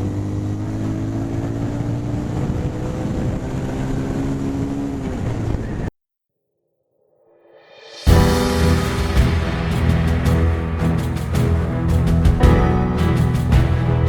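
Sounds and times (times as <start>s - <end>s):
music: 7.0s - 14.0s.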